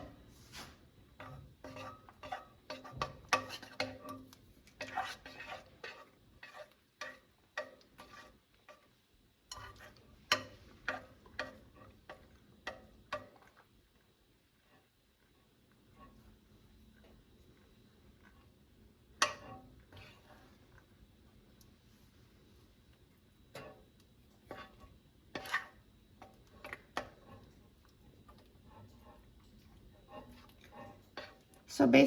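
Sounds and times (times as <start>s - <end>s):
utensil scraping a bowl: 0.0s - 12.2s, 24.4s - 27.6s, 28.3s - 31.6s.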